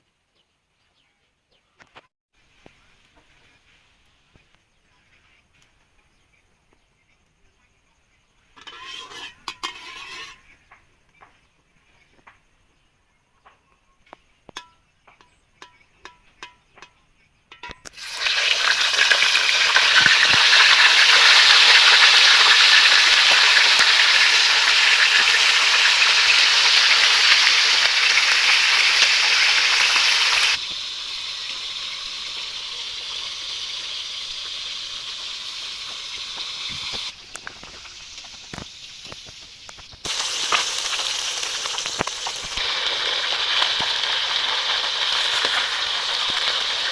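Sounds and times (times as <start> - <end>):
food sizzling in hot oil: 8.6 - 10.4, 17.9 - 46.9.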